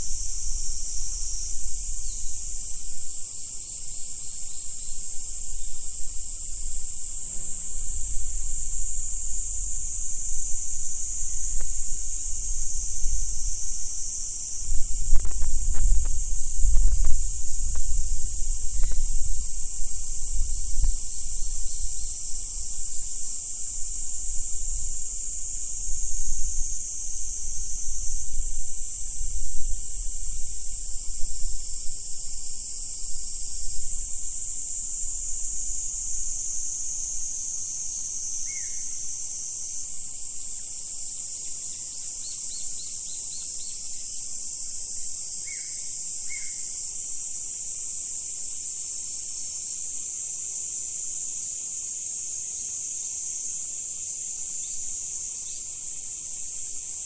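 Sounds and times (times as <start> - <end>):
insects calling: 0.0 - 57.0
low wind rumble: 5.8 - 22.7.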